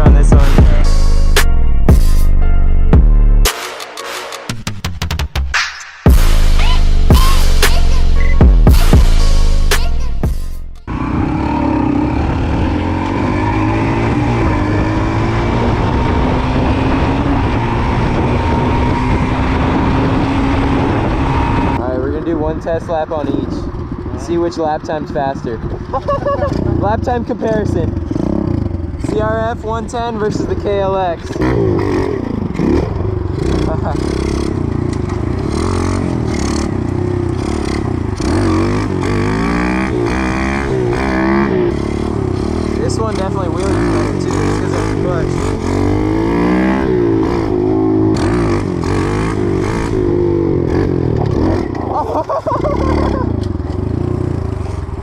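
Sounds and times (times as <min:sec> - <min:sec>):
pit bike engine running: 0:25.6 - 0:55.0.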